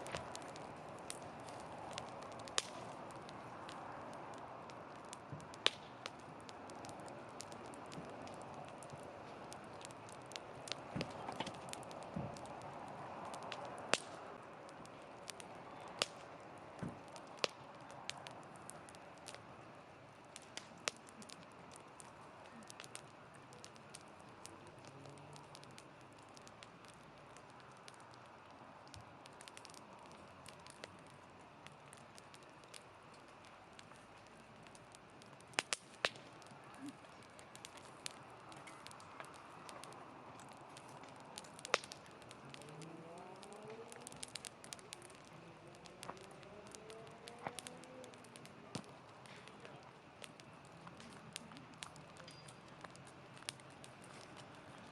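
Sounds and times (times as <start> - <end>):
low hiss of fire: 0.0 - 54.9
wood fire crackling: 0.0 - 54.9
sharp pops: 13.3 - 14.2, 28.9 - 54.8.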